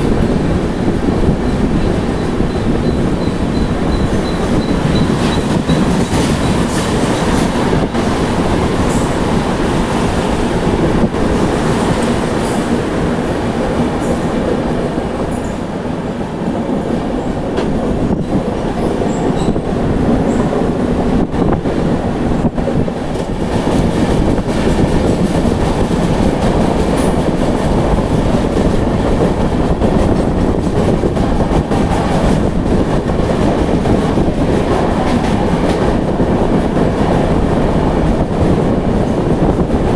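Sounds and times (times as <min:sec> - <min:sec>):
train wheels rumbling on rails: 0:00.0 - 0:39.9
clicks of train wheels: 0:00.8 - 0:09.8, 0:23.0 - 0:37.4.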